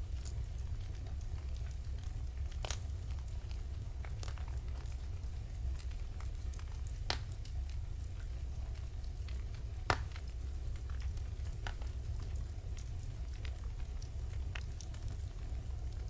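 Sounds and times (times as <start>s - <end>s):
wood fire crackling: 0.0s - 16.0s
fire popping: 5.8s - 15.8s.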